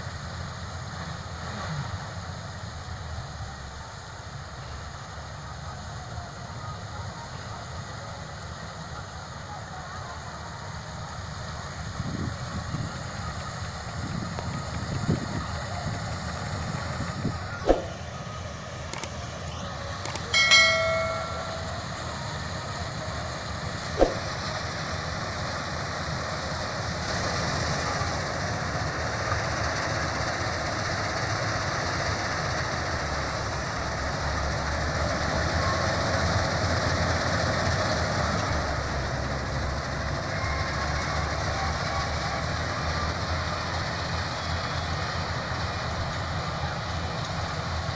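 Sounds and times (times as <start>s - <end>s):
combine harvester rumbling: 0.0s - 47.9s
sharp knocks: 17.7s - 18.0s, 24.0s - 24.3s
brief pitched tone: 20.1s - 22.2s, 24.0s - 24.3s.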